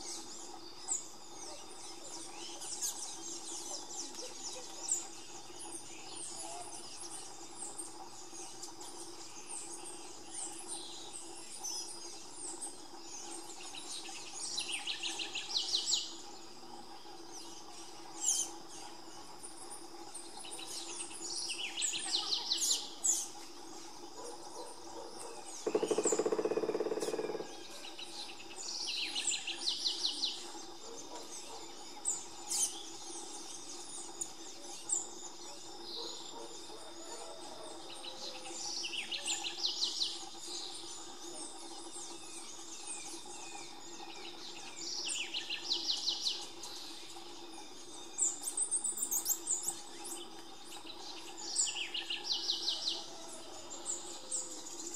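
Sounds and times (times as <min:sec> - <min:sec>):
birds chattering: 0:24.2 - 0:28.0.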